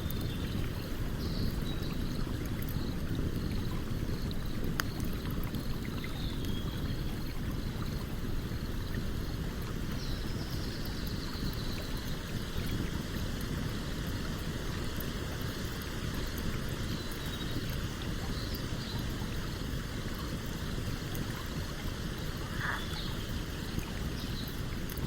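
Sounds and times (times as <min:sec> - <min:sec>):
stream flowing: 0:00.0 - 0:25.0
campfire crackling: 0:00.1 - 0:10.0.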